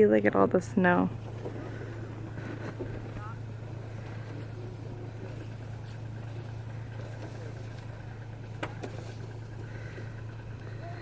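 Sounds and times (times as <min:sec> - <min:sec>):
car engine humming: 0:00.0 - 0:11.0.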